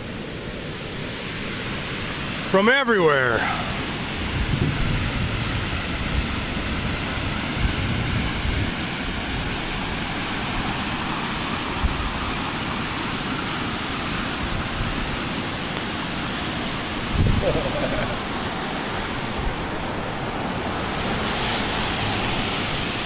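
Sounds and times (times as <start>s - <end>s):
flood water rushing: 0.0s - 23.0s
wind buffeting microphone: 3.6s - 13.0s, 13.8s - 23.0s.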